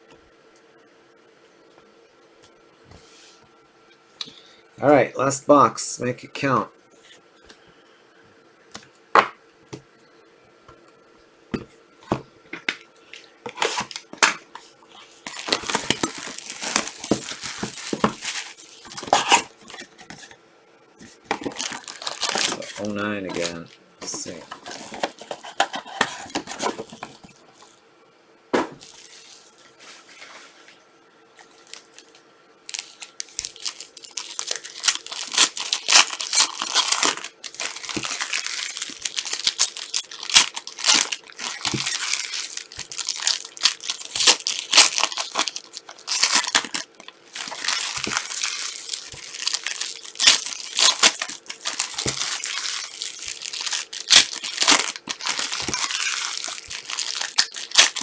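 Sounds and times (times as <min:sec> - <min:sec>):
card wrappers tearing and crinkling: 0:13.5 - 0:14.3, 0:15.2 - 0:20.3, 0:21.2 - 0:27.7, 0:31.6 - 0:58.0.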